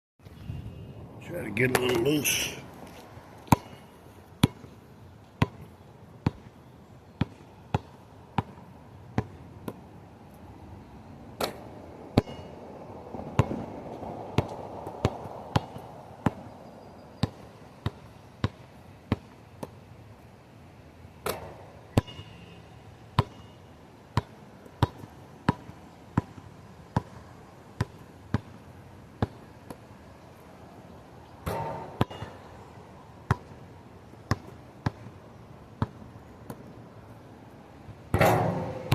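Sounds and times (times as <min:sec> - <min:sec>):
wind noise: 0:00.3 - 0:01.5.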